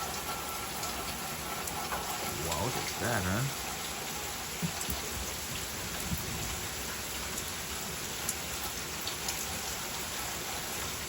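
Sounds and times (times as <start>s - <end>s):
heavy rain falling: 0.0s - 11.0s
sharp raindrop taps: 4.5s - 6.6s.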